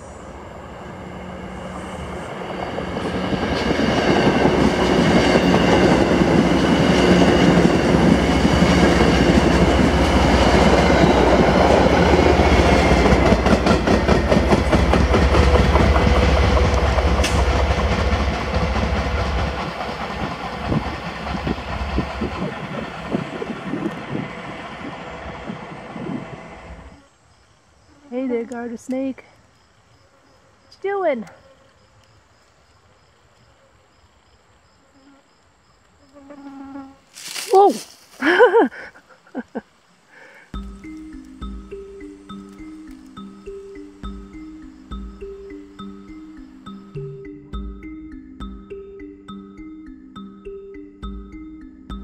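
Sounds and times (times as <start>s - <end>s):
diesel locomotive engine rumbling: 0.0s - 27.0s, 40.5s - 52.0s
wheels clicking over rail joints: 2.4s - 25.5s.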